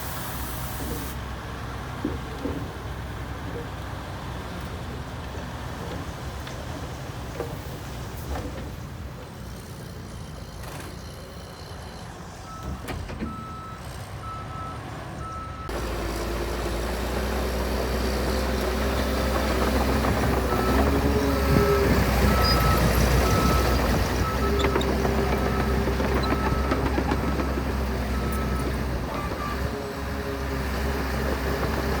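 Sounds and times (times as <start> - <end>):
diesel engine rumble: 0.0 - 32.0.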